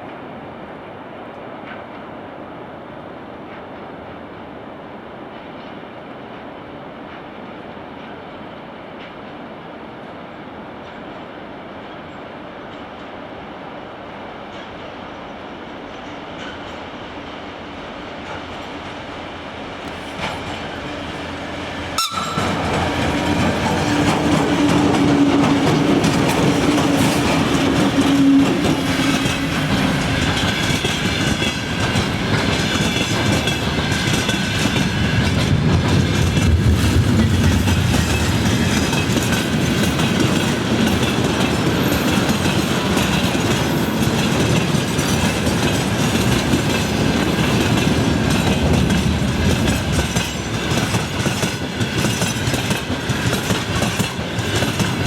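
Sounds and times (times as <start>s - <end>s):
freight train rumbling past: 0.0s - 55.0s
wheels clacking over rail joints: 19.8s - 55.0s.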